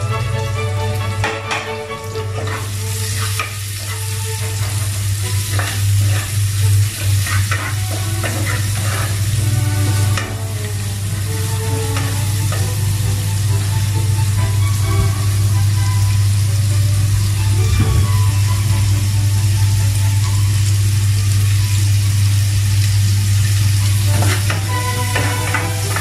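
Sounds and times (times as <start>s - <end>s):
onion sizzling in hot oil: 0.0s - 26.0s
wooden spatula scraping a pot: 2.3s - 10.5s, 24.1s - 26.0s.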